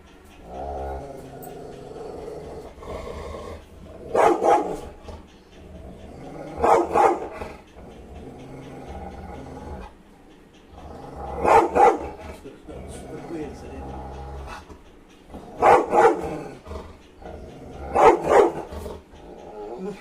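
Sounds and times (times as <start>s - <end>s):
dog barking: 4.1s - 5.0s, 6.5s - 7.4s, 11.4s - 12.2s, 15.6s - 16.5s, 17.9s - 18.7s.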